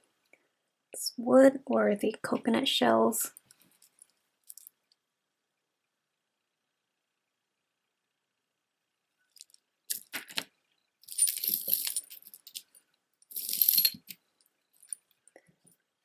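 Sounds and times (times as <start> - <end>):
beads and chain clinking: 3.4 - 4.8, 9.2 - 15.2.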